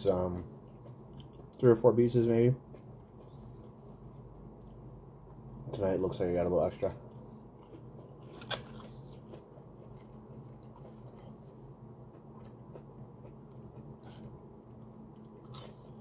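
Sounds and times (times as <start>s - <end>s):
steady low hum: 0.0s - 16.0s
person chewing: 0.6s - 1.6s, 2.6s - 4.9s, 7.0s - 16.0s.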